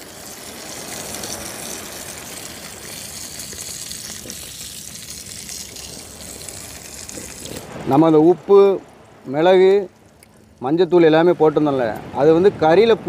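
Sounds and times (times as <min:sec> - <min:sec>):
prawn sizzling in a pan: 0:00.0 - 0:07.7.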